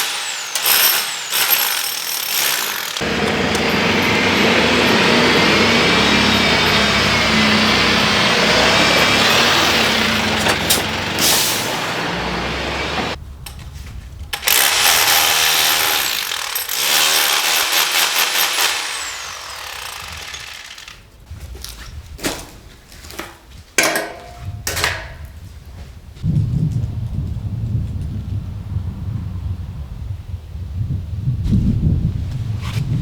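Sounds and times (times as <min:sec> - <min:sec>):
power tool running: 0:00.0 - 0:13.2, 0:14.4 - 0:21.1
clicks and knocks: 0:23.2 - 0:25.2.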